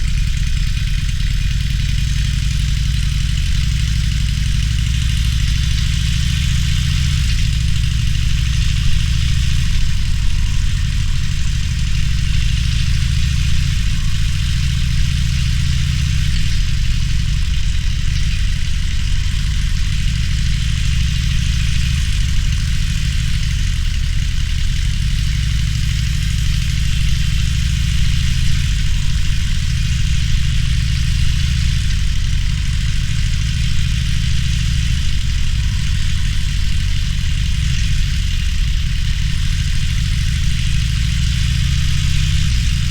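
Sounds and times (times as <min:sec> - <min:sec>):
motorcycle engine running: 0:00.0 - 0:42.9
wind and road noise: 0:00.0 - 0:42.9.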